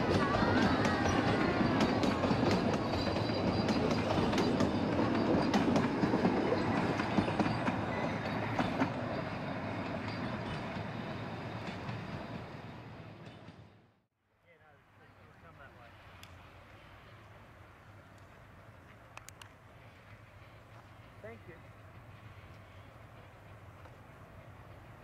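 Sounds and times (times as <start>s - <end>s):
train wheels clicking over rail joints: 0.0s - 12.4s.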